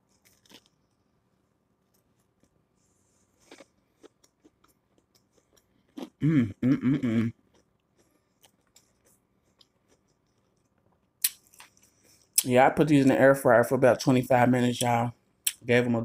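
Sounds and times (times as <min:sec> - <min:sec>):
chewing crispy food: 0:00.0 - 0:01.1, 0:01.8 - 0:12.5
person humming with full mouth: 0:06.2 - 0:07.3.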